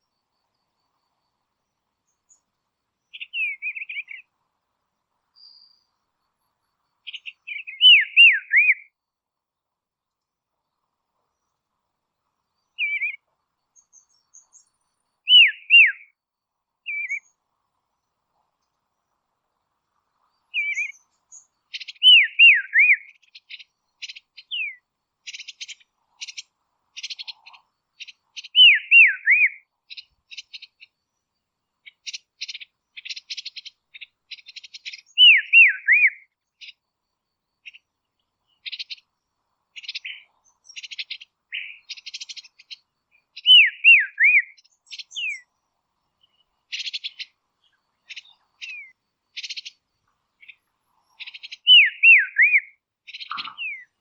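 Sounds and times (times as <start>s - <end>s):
bird down-slurred whistles: 51.7s - 53.9s.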